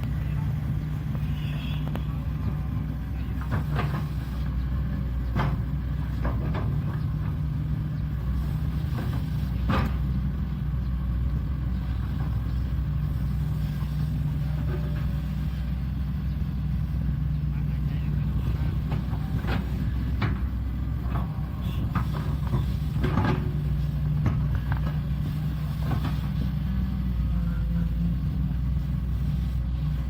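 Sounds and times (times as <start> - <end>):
excavator diesel engine under load: 0.0 - 30.0.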